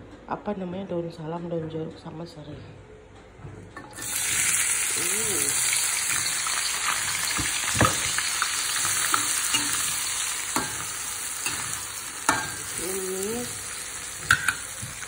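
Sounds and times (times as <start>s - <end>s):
vegetables sizzling in hot oil: 3.9s - 15.0s.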